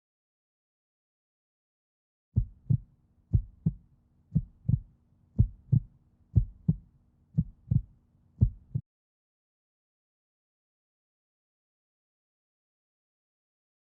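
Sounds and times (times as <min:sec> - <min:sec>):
heartbeat thumps: 0:02.4 - 0:06.8, 0:07.4 - 0:08.8.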